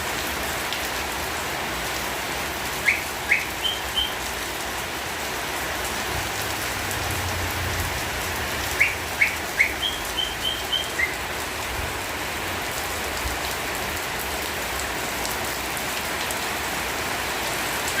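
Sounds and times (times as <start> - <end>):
steady rain falling: 0.0 - 18.0
bird chirping: 2.9 - 4.2, 8.7 - 11.2.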